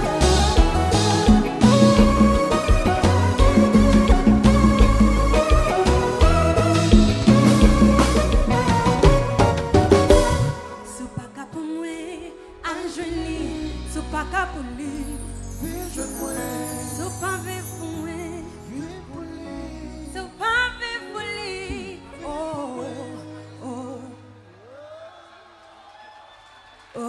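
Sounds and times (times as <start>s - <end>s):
live band music: 0.0s - 11.2s.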